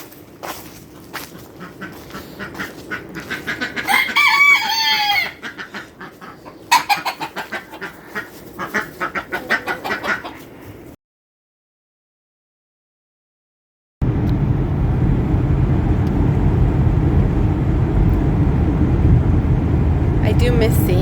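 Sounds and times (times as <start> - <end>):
chickens clucking: 1.3 - 10.8
loud chicken call: 3.2 - 10.4.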